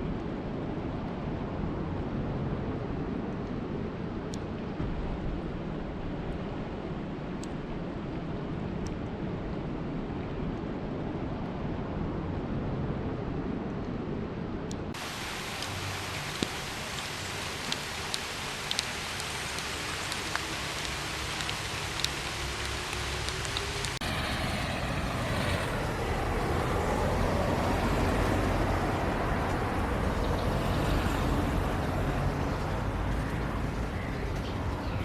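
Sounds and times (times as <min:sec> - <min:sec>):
raindrops ticking: 0:15.0 - 0:24.0, 0:27.6 - 0:35.0
rain rushing: 0:15.0 - 0:35.0.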